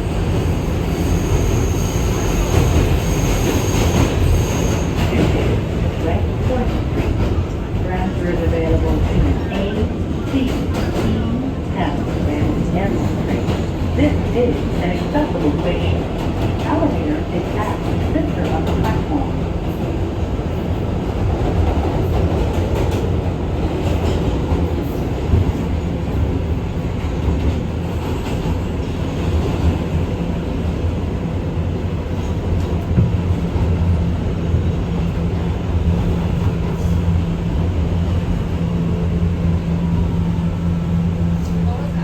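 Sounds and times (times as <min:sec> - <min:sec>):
subway car rumbling: 0:00.0 - 0:42.0.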